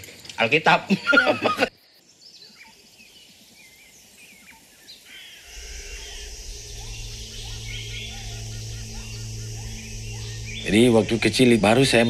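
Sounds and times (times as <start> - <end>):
bird chirps and calls: 1.9 - 12.0
high hiss: 4.7 - 12.0
steady low drone: 5.5 - 12.0.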